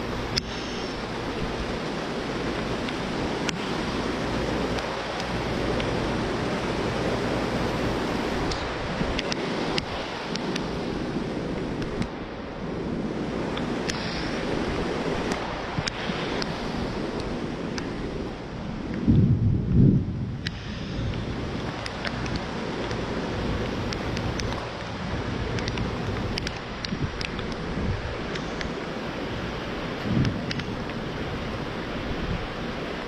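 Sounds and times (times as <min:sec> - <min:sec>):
storm wind rushing: 0:00.0 - 0:33.0.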